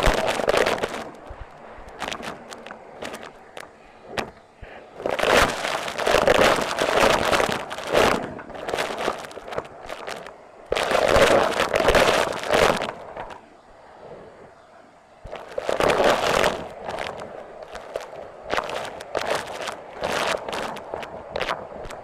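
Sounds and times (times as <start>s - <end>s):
scattered clicks: 0.0s - 13.4s.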